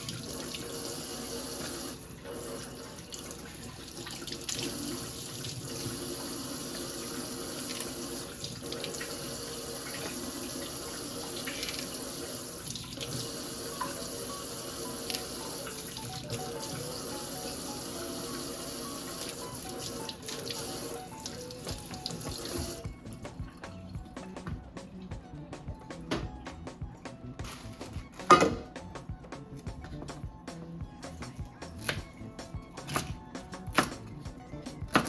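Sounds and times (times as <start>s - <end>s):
tap water running into sink: 0.0s - 24.5s.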